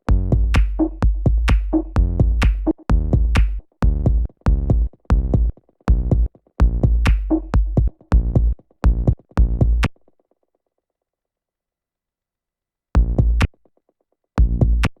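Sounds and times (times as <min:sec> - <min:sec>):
bass-heavy drum-machine hits: 0:00.1 - 0:09.9, 0:13.0 - 0:13.5, 0:14.4 - 0:14.9.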